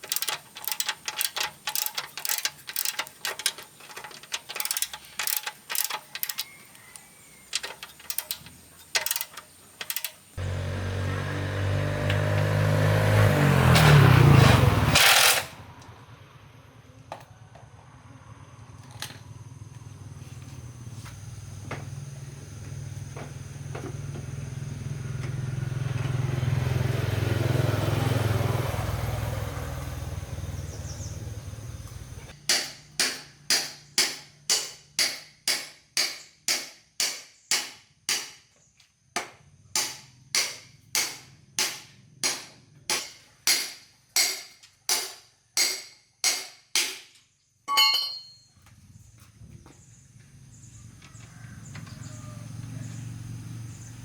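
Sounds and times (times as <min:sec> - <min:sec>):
motor hum: 0:00.0 - 0:14.0
hammer striking metal: 0:32.5 - 0:38.4, 0:39.8 - 0:47.1, 0:47.7 - 0:48.4.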